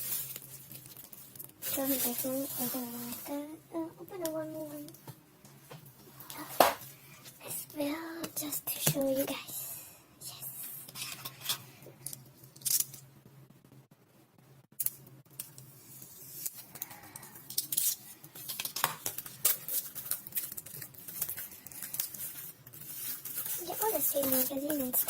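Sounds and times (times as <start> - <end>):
plastic packaging crinkling: 17.5 - 25.0.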